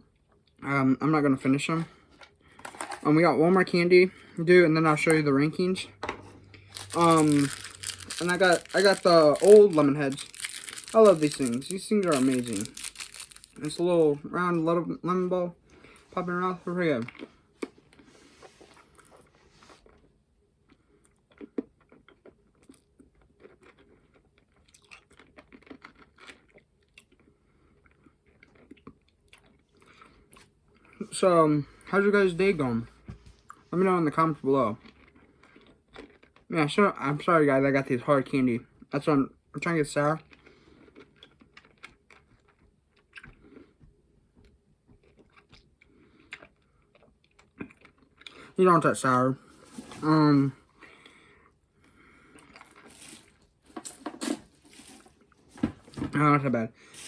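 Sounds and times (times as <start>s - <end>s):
person crunching hard candy: 6.6s - 14.2s, 20.7s - 30.9s, 34.8s - 36.5s, 40.2s - 43.7s, 45.0s - 53.7s.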